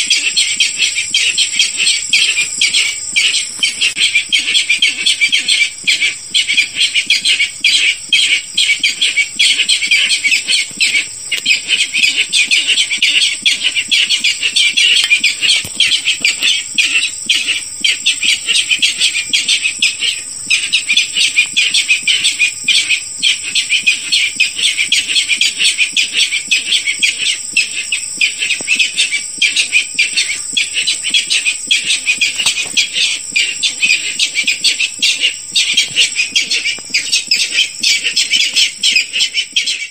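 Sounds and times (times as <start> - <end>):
bird calling harsh notes: 0.0 - 39.9.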